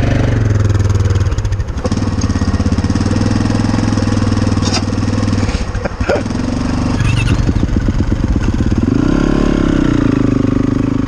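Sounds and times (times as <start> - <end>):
small motor engine running: 1.8 - 8.9.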